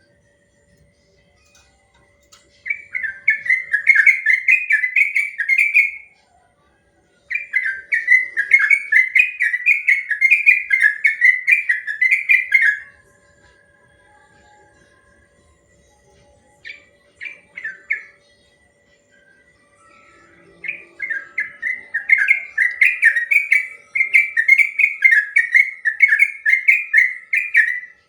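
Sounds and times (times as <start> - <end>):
bird singing whistled notes: 2.6 - 6.1, 7.3 - 13.0, 15.8 - 28.0.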